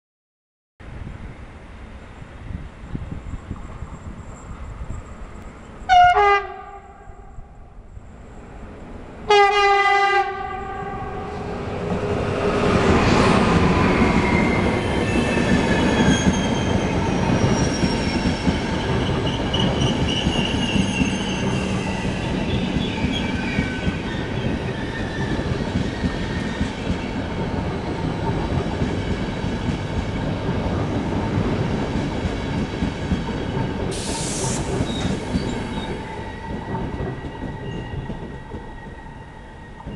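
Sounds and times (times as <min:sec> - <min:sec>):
train rumbling past: 0:00.8 - 0:39.9
train horn blast: 0:05.9 - 0:07.5, 0:09.3 - 0:11.5
wheel squeal: 0:14.2 - 0:26.8, 0:34.5 - 0:39.9.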